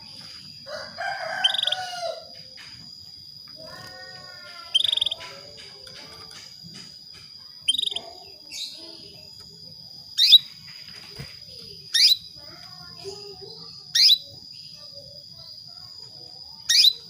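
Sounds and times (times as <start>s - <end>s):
canary chirping calls: 1.0s - 2.2s, 3.6s - 6.5s, 7.6s - 10.7s, 11.8s - 17.0s.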